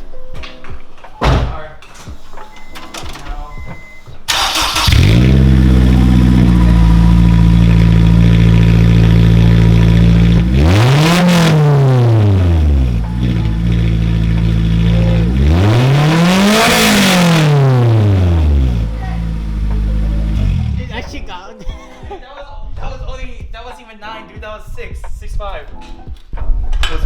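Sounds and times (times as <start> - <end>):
loud car engine idling and revving: 4.3 - 21.1.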